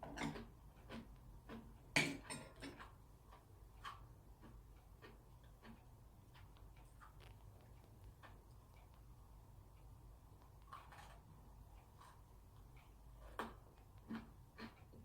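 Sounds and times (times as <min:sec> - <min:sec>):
crunchy biscuit chewing: 0:02.8 - 0:09.1, 0:10.4 - 0:15.0.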